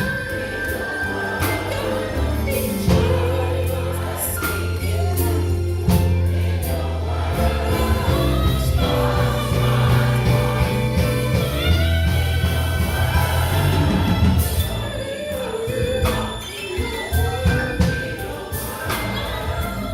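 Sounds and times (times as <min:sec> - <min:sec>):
deep bass notes: 0:00.0 - 0:16.4
gospel choir singing: 0:00.0 - 0:19.9.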